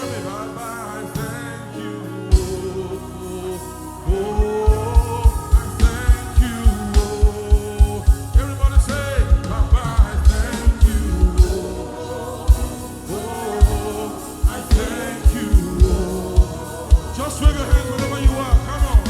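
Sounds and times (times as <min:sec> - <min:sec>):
gospel band playing: 0:00.0 - 0:19.0
people singing: 0:00.0 - 0:19.0
kick drum beat: 0:04.1 - 0:11.6, 0:13.6 - 0:19.0.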